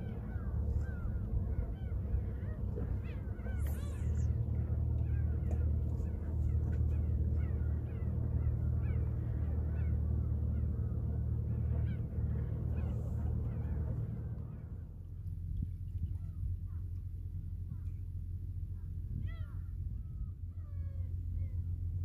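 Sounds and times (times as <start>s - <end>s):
birds calling: 0.0s - 15.0s
steady low rumble: 0.0s - 22.0s.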